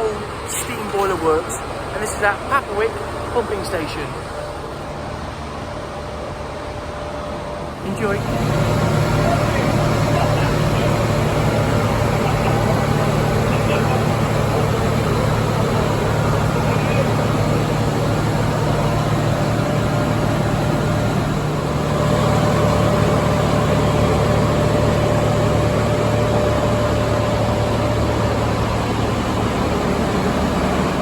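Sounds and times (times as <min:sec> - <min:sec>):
boiler plant machinery drone: 0:00.0 - 0:31.0
thin steady whine: 0:00.0 - 0:31.0.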